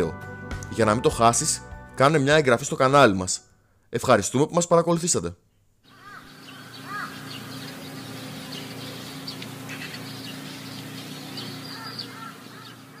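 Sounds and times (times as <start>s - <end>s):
birds calling and chirping: 5.8s - 13.0s
steady low hum: 6.0s - 13.0s.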